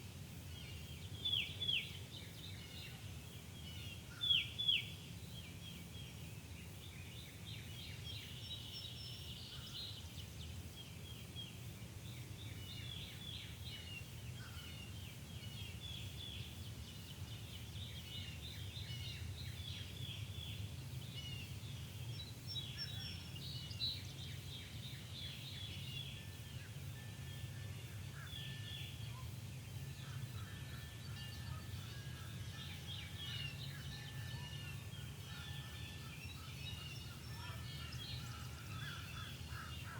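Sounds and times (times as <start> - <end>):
low steady hum: 0.0 - 39.9
many birds calling: 27.9 - 39.9.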